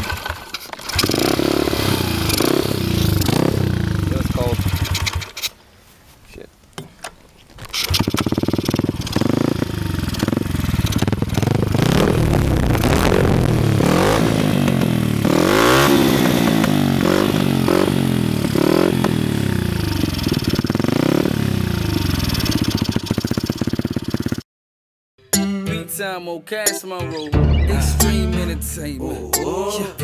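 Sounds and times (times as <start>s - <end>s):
motorbike engine revving: 0.0s - 5.4s, 7.8s - 24.4s.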